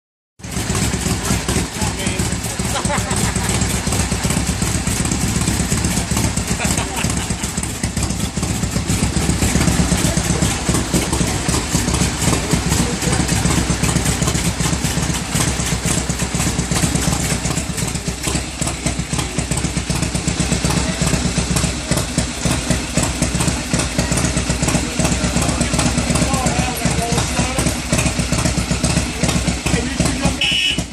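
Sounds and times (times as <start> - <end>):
motorcycle engine idling: 0.4 - 30.9.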